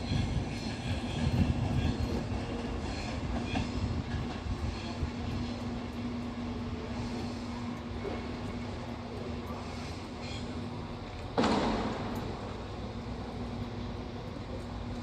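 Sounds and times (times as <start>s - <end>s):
electric train rumble and hum: 0.0s - 15.0s
sudden loud burst of noise: 11.4s - 12.6s.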